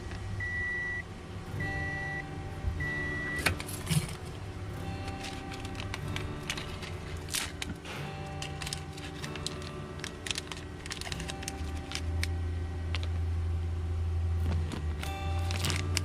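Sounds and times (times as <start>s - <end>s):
low background tone: 0.0s - 16.0s
plastic parts clicking: 5.0s - 7.8s, 8.4s - 12.3s.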